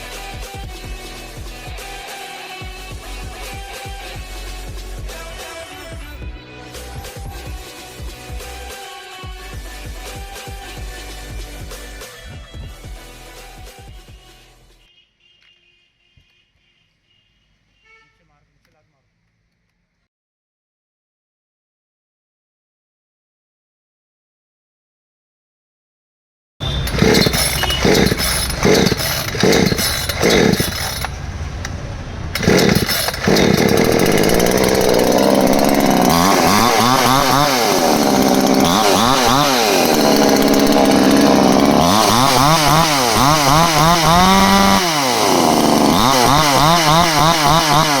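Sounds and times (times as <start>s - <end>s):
chainsaw revving: 26.6s - 48.0s.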